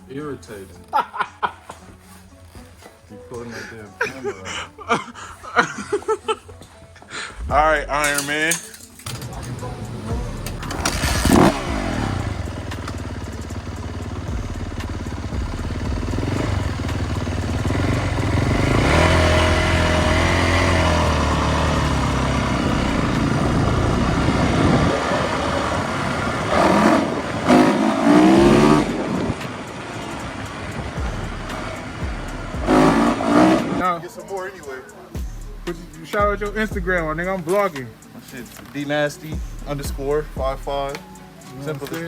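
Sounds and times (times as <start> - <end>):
vehicle engine revving: 9.1 - 34.1.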